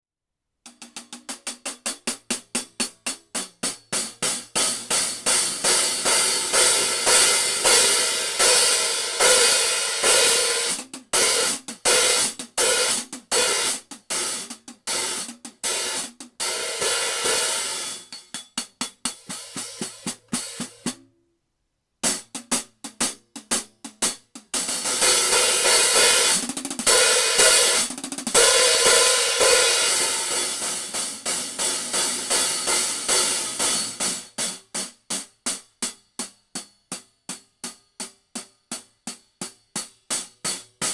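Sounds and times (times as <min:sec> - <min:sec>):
cymbals played with sticks: 0:02.8 - 0:21.0, 0:24.6 - 0:34.2.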